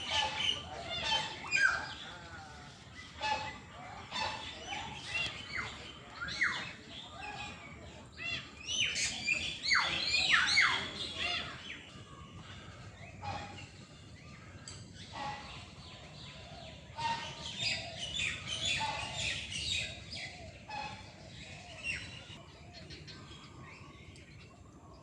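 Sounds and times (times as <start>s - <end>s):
birds calling and chirping: 0.0s - 25.0s.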